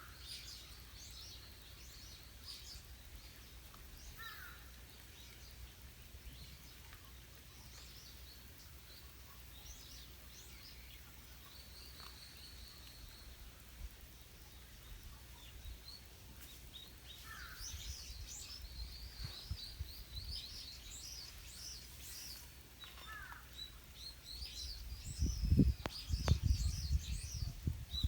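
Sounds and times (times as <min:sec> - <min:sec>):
lower falling bird call: 0:00.0 - 0:07.1, 0:14.7 - 0:28.0
birds chirping: 0:00.0 - 0:28.0.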